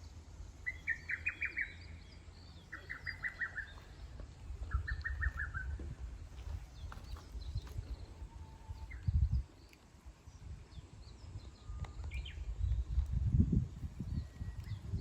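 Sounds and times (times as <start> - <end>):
birds chirping and whistling: 0.6 - 9.7, 10.7 - 13.1.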